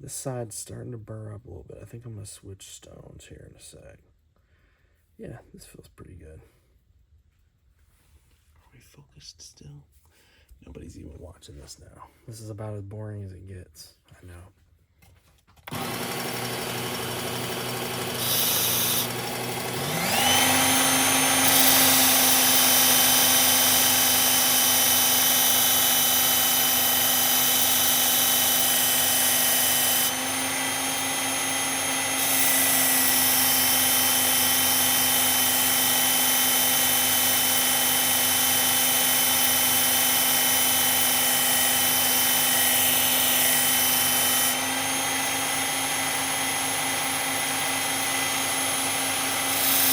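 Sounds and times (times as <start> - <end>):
sharpener motor whining: 15.6 - 49.9
abrasive belt grinding steel blade: 15.7 - 49.9.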